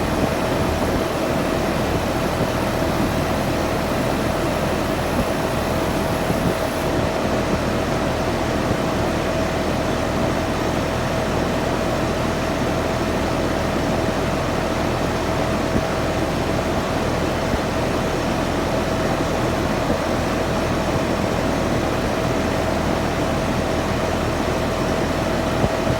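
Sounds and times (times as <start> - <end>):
air conditioner hum: 0.0 - 7.3
air conditioner whine: 0.0 - 25.9.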